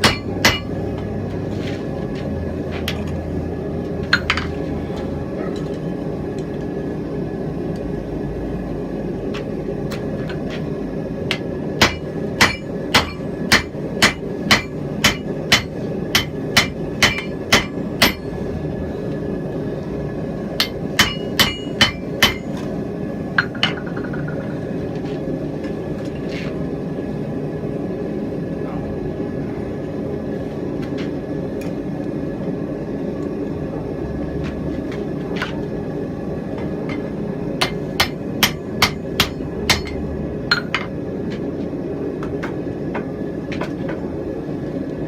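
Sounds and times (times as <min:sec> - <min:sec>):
hammer striking steel on anvil: 0:00.0 - 0:00.8, 0:11.3 - 0:18.4, 0:20.6 - 0:22.6, 0:36.9 - 0:40.9.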